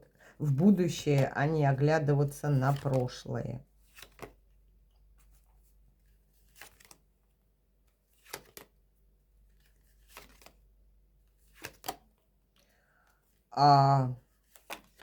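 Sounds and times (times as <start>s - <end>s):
soft card flicks and rustles: 3.9s - 4.4s, 8.1s - 8.8s, 9.5s - 10.6s, 11.4s - 12.2s, 14.4s - 15.0s.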